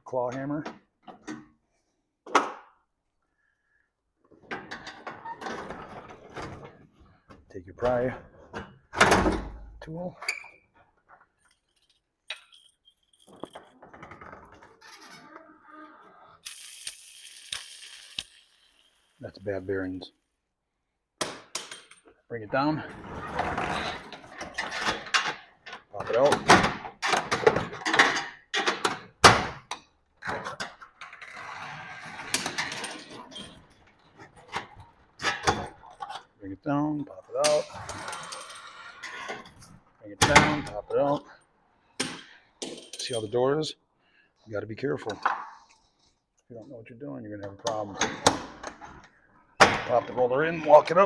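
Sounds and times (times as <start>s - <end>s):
rollers rattling and scraping: 11.1s - 15.3s, 22.7s - 28.8s, 30.2s - 41.3s
garage door hardware clanking: 23.4s - 36.3s.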